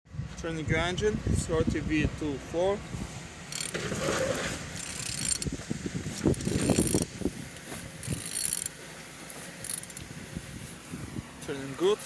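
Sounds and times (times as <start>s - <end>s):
engine turned by hand clicking: 3.5s - 10.2s.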